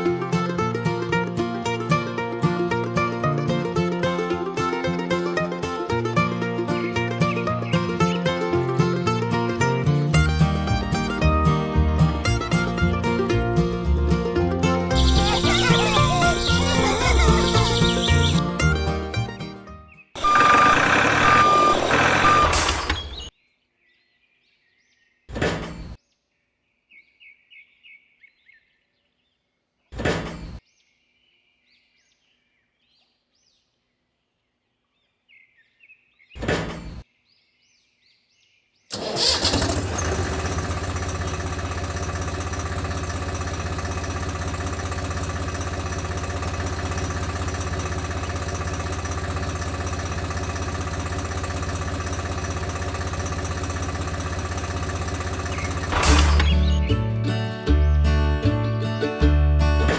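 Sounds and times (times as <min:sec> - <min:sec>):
small motor humming: 0:20.2 - 0:23.2, 0:38.9 - 0:56.6.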